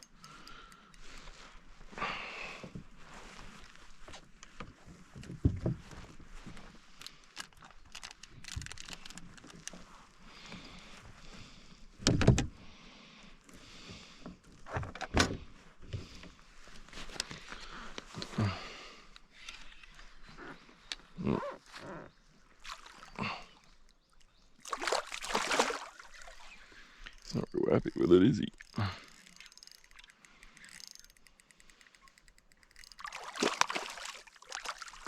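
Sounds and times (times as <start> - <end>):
knocks and thumps against kayak: 4.6 - 6.1.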